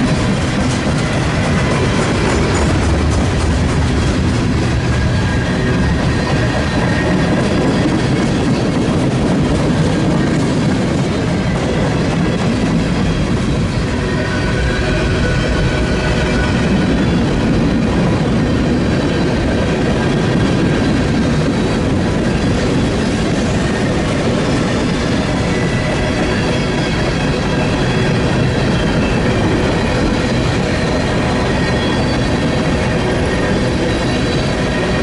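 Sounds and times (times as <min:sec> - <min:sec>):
train wheels rumbling on rails: 0:00.0 - 0:35.0
faint high wheel squeal: 0:23.4 - 0:35.0.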